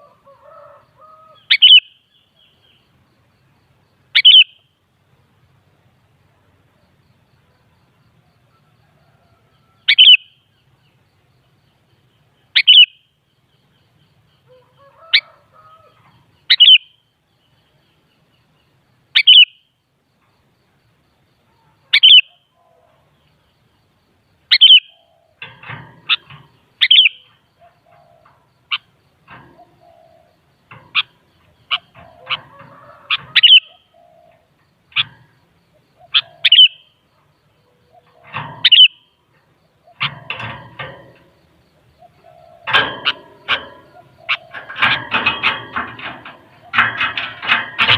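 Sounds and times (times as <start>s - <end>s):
bird giving sharp high calls: 33.0s - 34.3s.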